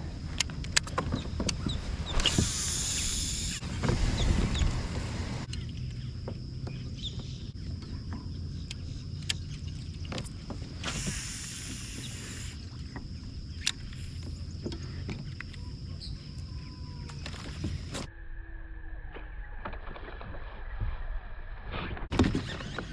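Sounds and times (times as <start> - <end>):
wind rumble: 0.0 - 6.7
water around kayak: 0.0 - 16.4
brief hiss: 2.0 - 5.5.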